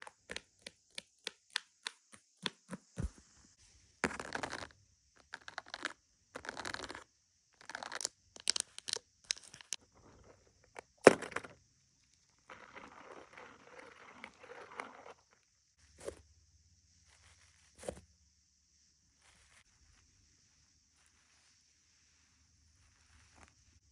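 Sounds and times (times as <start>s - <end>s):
rustling: 9.8s - 16.2s.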